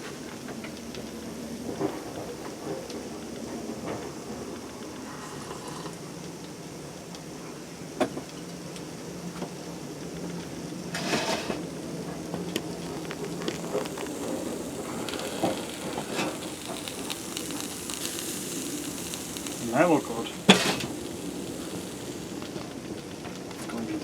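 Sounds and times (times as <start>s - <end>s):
food sizzling in a frying pan: 9.8s - 24.0s.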